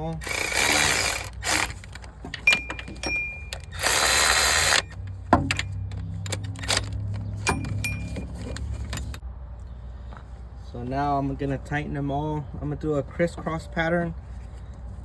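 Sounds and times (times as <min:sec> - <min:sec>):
ratchet wrench ratcheting: 0:00.0 - 0:09.2.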